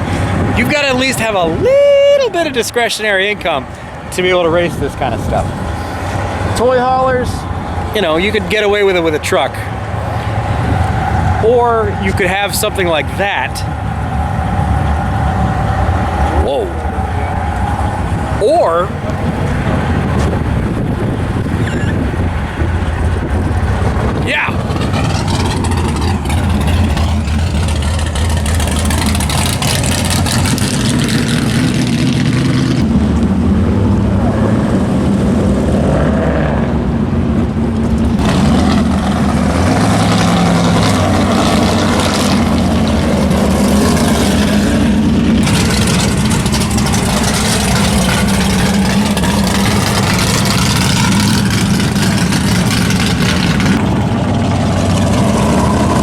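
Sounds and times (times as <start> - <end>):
car engines revving and idling: 0.0 - 56.0.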